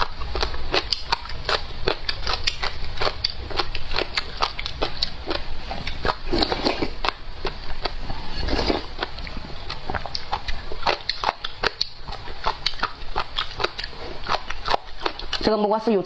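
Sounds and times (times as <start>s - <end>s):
crunchy chewing: 0.0s - 15.5s
wet mouth sounds: 0.0s - 15.5s.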